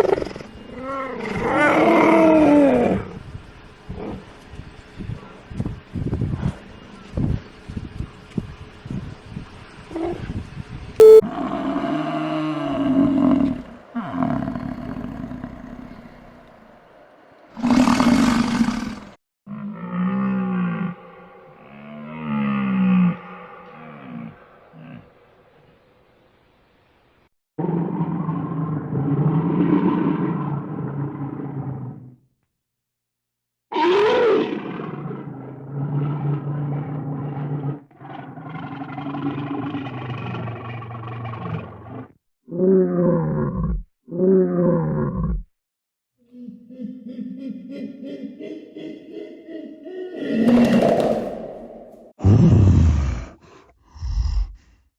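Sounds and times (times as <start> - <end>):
large animal roaring: 0.0 - 3.2, 11.3 - 16.6, 17.5 - 25.2, 27.6 - 32.2, 33.7 - 45.5, 49.9 - 54.8.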